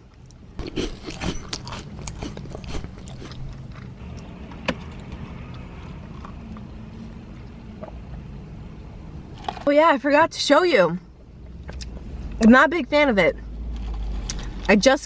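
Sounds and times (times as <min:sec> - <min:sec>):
chewing and wet mouth clicks: 0:00.6 - 0:03.8.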